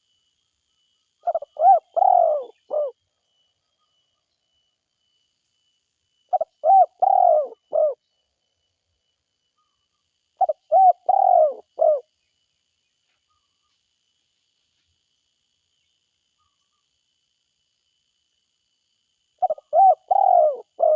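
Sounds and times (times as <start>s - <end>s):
dove cooing: 1.2s - 3.0s, 6.3s - 8.0s, 10.4s - 12.1s, 19.4s - 20.9s.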